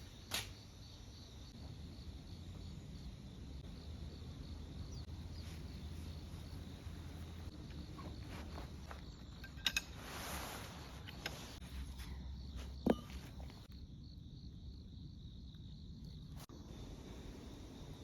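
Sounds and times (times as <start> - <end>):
crickets chirping: 0.0 - 18.0
camping gear clicks and knocks: 7.6 - 13.6.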